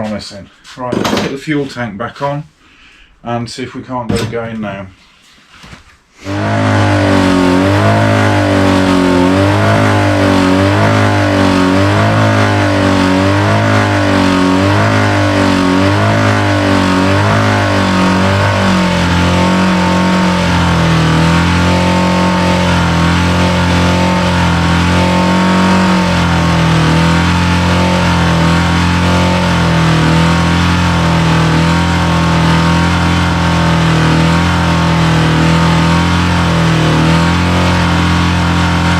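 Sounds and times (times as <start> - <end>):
motorcycle engine revving: 6.2 - 38.9.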